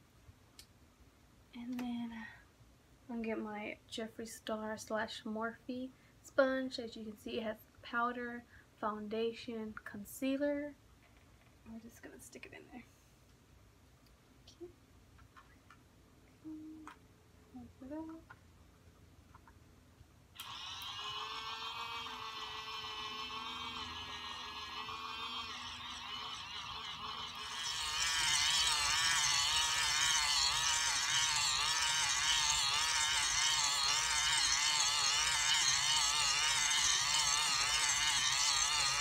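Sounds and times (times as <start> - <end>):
small electric motor whining: 20.4 - 39.0.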